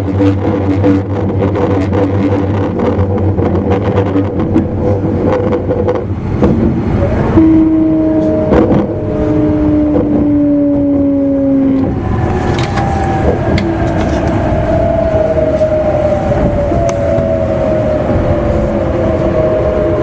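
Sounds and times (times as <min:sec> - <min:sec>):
train running rumble: 0:00.0 - 0:20.0
train motor whining: 0:07.4 - 0:19.3.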